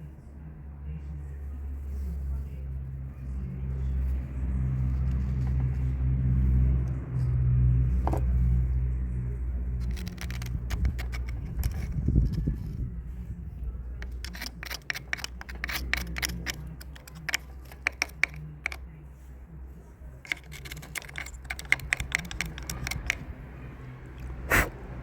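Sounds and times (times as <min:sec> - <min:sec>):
low steady hum: 0:00.0 - 0:25.0
tools and metal parts clicking: 0:09.8 - 0:12.8, 0:14.0 - 0:18.8, 0:20.2 - 0:23.3.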